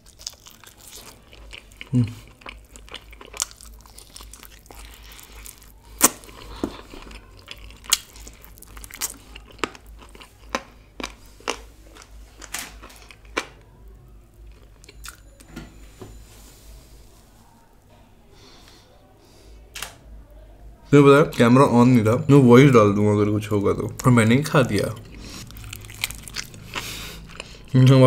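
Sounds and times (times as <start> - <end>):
crunching bites and chewing: 0.0 - 13.6, 25.0 - 27.7.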